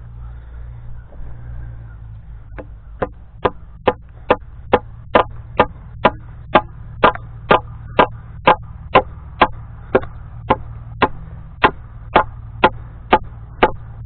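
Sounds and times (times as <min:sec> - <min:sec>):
low rumble: 0:00.0 - 0:14.0
hammer striking nail into wood: 0:03.0 - 0:13.8.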